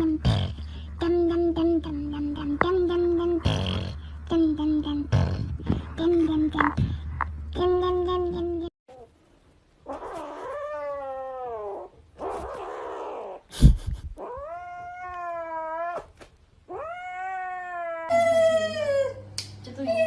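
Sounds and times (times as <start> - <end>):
cat yowling: 9.9 - 13.4, 16.7 - 19.2.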